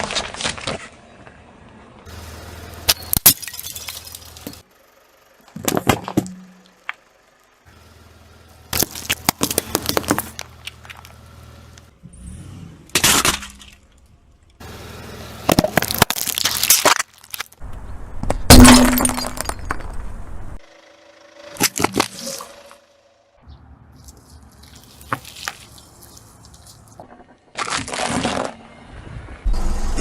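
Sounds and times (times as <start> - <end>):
brittle objects crunching under tyre: 0.0 - 1.0, 2.8 - 4.6, 8.7 - 11.8, 15.4 - 20.2, 23.9 - 28.7.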